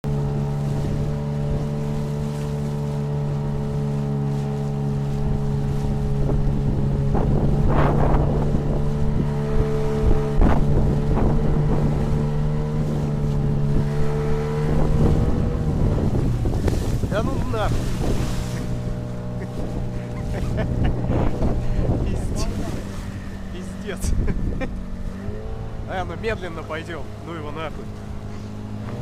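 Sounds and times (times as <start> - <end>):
outboard motor running: 0.0 - 29.0
water slapping against hull: 0.0 - 29.0
wind on microphone: 0.0 - 29.0.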